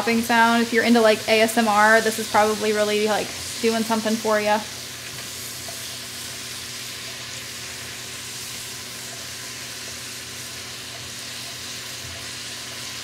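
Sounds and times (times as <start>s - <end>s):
meat sizzling and popping in pot: 0.0s - 13.0s
spatula stirring: 5.0s - 9.6s.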